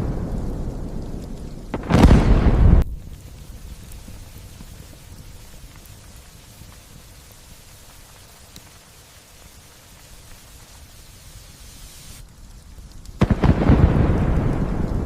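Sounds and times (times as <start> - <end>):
loud thunder clap: 0.0 - 3.0, 13.2 - 15.0
light rain falling: 0.0 - 15.0.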